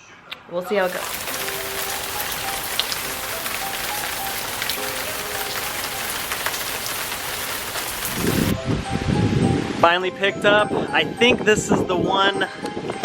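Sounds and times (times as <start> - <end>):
heavy rain falling: 0.8 - 8.6.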